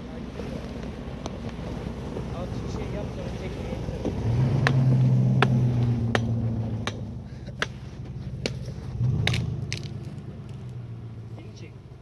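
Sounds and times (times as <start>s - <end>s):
engine revving under load: 0.0s - 12.0s
sharp crunching clicks: 8.4s - 10.8s.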